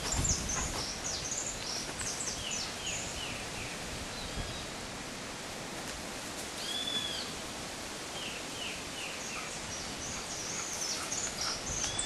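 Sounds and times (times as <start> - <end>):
small birds chirping: 0.0 - 4.7, 8.2 - 12.0
outdoor background hiss: 0.0 - 12.0.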